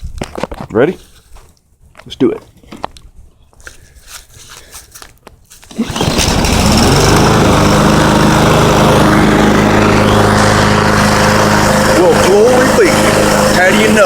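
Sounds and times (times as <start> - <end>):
lawnmower engine pull-started: 5.6 - 14.0.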